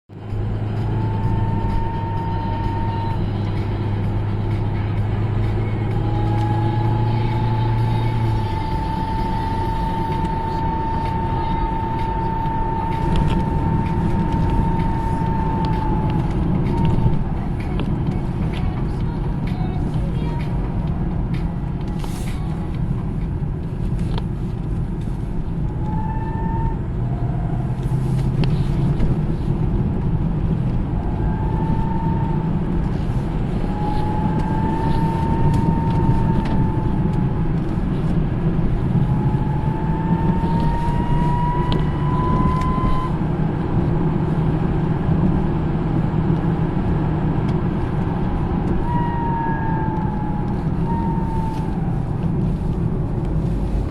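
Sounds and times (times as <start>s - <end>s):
road and drivetrain rumble: 0.0s - 53.9s
thin bearing whistle: 0.9s - 3.8s, 5.8s - 17.4s, 25.8s - 27.3s, 31.2s - 37.3s, 39.0s - 43.2s, 48.4s - 52.0s.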